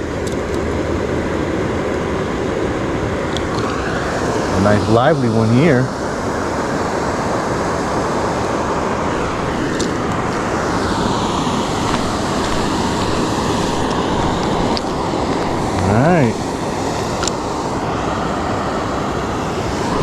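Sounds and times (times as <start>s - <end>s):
waterfall rushing: 3.4s - 20.0s
faint clicks: 17.2s - 17.5s.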